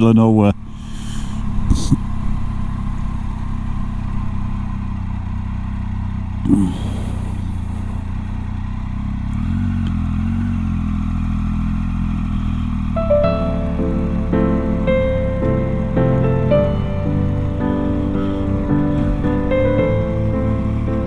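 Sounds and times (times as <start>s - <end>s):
motorcycle engine running: 0.5s - 21.0s
music: 13.0s - 21.0s.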